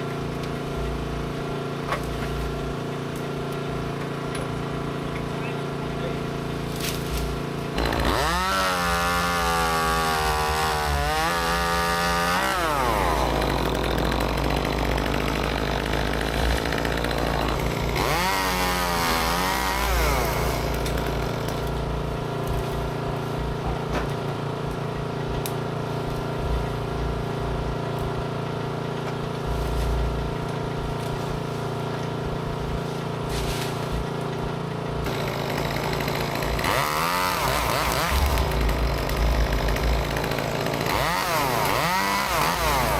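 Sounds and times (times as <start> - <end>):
chainsaw revving: 6.2 - 23.6, 26.2 - 42.9.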